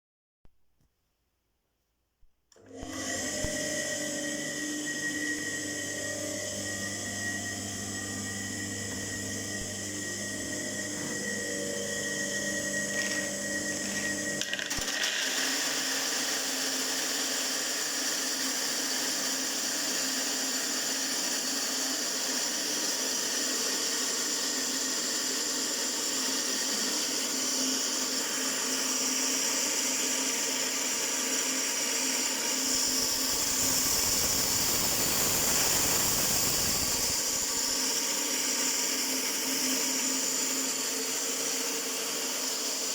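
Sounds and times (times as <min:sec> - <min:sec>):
shredder motor whirring hum: 0:02.6 - 0:42.9
coarse shredding noise: 0:32.8 - 0:37.6.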